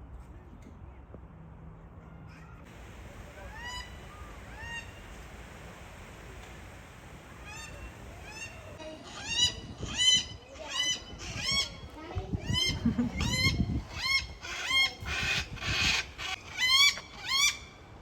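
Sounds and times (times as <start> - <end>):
birds honking: 2.7 - 5.6, 6.8 - 10.3.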